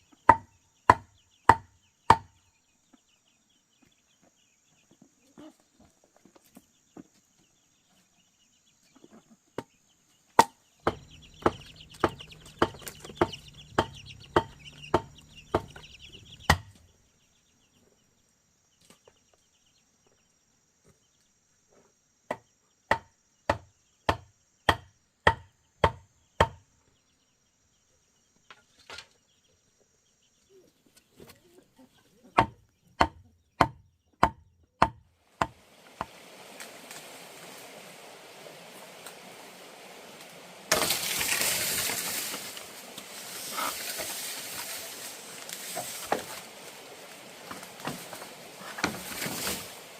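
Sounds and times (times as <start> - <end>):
rhythmic blows on wood: 0.2 - 2.4, 10.4 - 16.8
hens clucking: 5.2 - 6.5, 10.8 - 16.9, 38.4 - 49.9.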